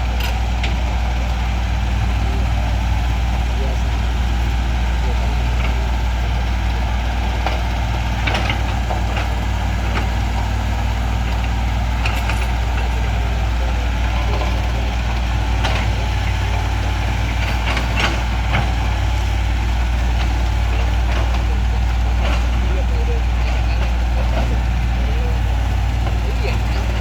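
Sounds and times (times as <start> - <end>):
diesel engine rumbling: 0.0 - 27.0
sharp clicks and knocks: 7.4 - 10.5, 17.2 - 18.8.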